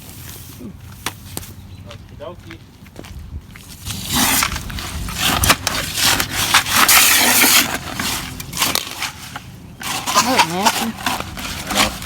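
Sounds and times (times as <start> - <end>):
dry concrete mix pouring: 3.8 - 12.0
knocks and scrapes: 3.8 - 12.0.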